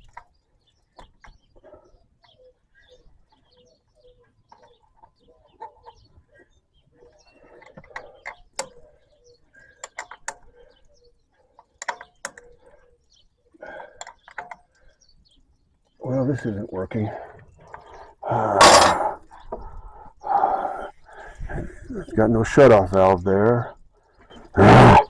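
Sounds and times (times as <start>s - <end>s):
birds chirping: 0.0s - 25.0s
hand tools clicking and clinking: 18.6s - 19.2s.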